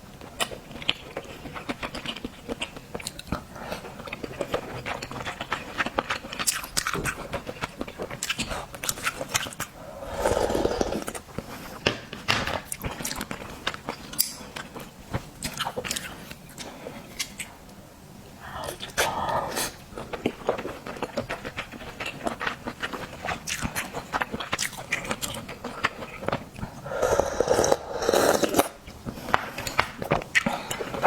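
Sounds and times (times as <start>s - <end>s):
chewing oysters with wet clicks: 20.0s - 26.7s.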